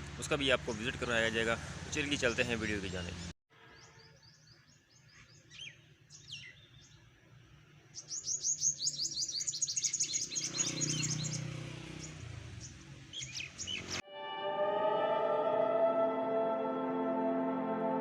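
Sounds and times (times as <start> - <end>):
small birds chirping: 2.1 - 7.2, 7.9 - 14.0.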